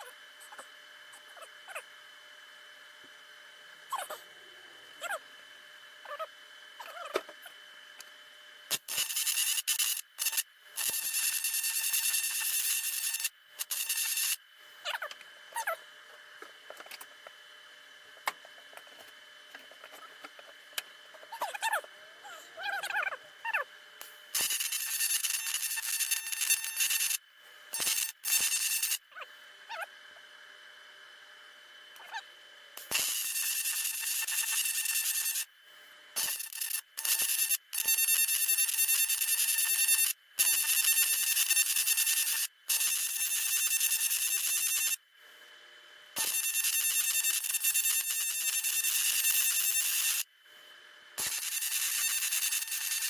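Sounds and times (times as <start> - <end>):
dog whimpering: 3.9 - 4.2, 6.1 - 7.2, 21.3 - 23.6
welding arc hissing and crackling: 8.7 - 14.4, 24.0 - 29.0, 32.8 - 35.5, 36.2 - 45.0, 51.2 - 53.0.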